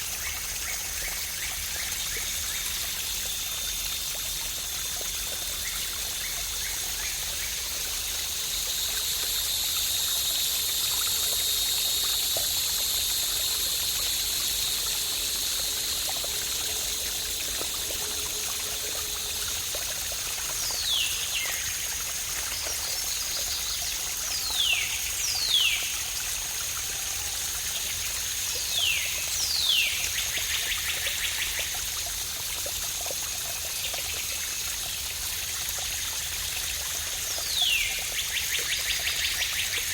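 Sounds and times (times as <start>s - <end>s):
waterfall pouring: 0.0s - 29.6s.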